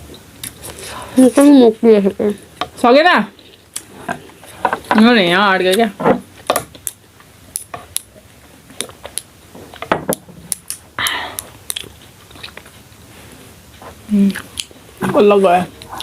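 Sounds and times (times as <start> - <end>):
person chewing and swallowing: 6.7 - 12.9, 13.7 - 14.9.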